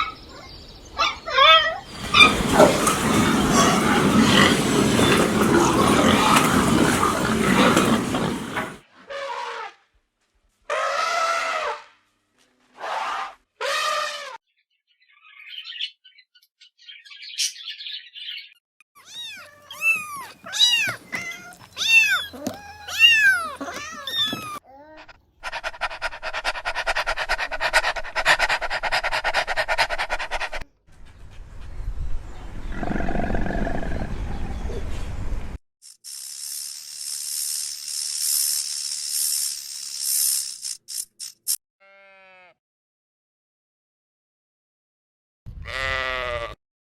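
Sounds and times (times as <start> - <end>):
animal short pitched cries: 19.0 - 24.6.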